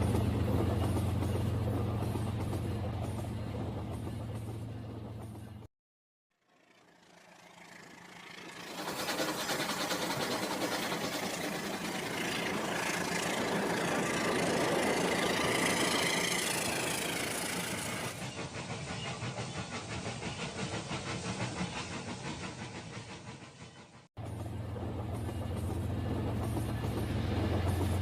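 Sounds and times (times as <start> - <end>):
toy train rattling on track: 7.8 - 18.2.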